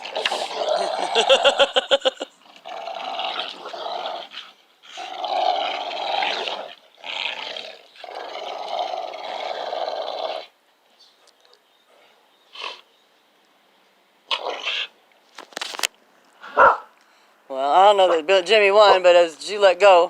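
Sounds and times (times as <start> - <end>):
dog play-growling: 2.4 - 10.5.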